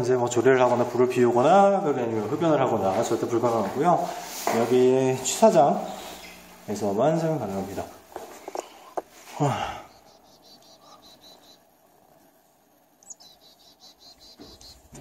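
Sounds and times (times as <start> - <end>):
small bird calling: 7.9 - 15.0.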